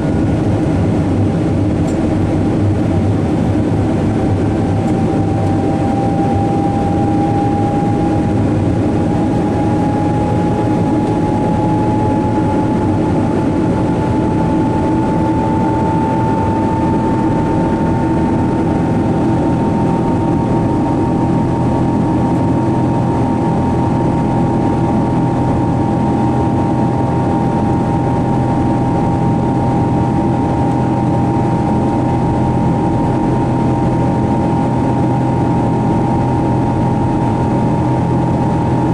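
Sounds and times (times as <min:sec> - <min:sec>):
jet engine rumble in cabin: 0:00.0 - 0:38.9
jet engine whine: 0:00.0 - 0:38.9.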